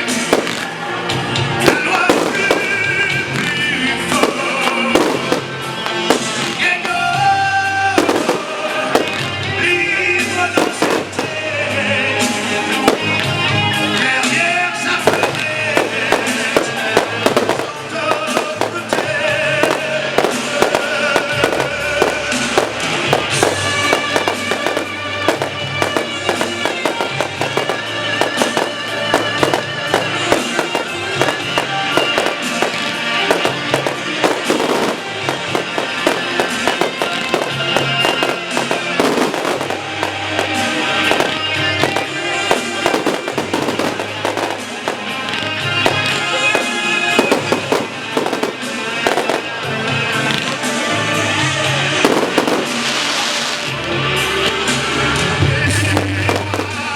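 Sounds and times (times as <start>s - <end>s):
fireworks bursting and crackling: 0.0s - 56.9s
music: 0.0s - 56.9s.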